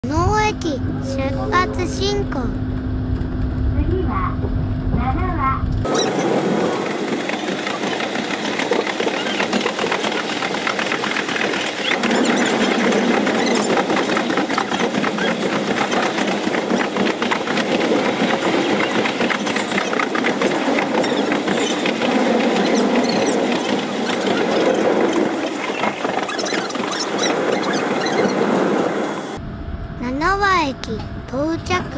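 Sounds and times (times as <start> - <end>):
train wheels rumbling on rail: 0.0 - 29.4
high squeal from wheels: 20.9 - 29.4.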